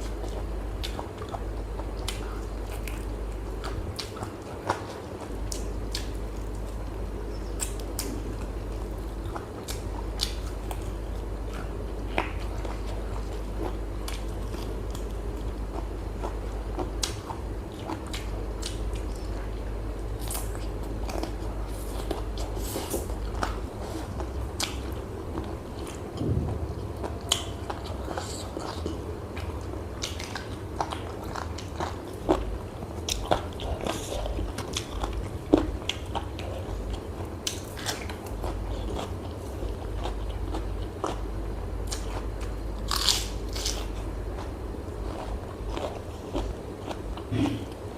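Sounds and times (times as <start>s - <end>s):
chewing and biting: 0.0s - 26.3s, 27.3s - 47.8s
steady low hum: 0.0s - 47.9s
small crunches: 42.9s - 43.9s.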